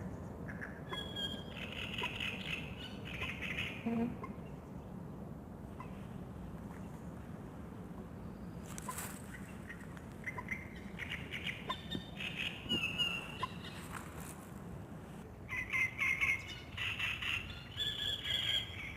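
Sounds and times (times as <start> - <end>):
birds calling and chirping: 0.0 - 5.0, 8.2 - 14.5, 15.5 - 18.9
outdoor background noise: 0.0 - 18.9.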